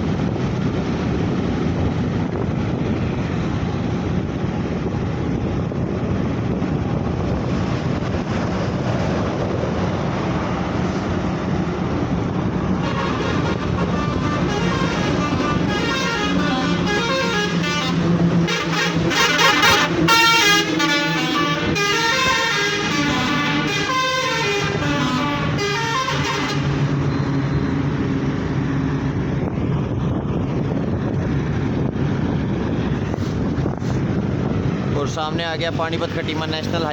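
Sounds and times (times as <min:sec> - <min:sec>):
vehicle road noise: 0:00.0 - 0:36.9
wind buffeting microphone: 0:00.0 - 0:36.9
vehicle horn: 0:12.8 - 0:27.3.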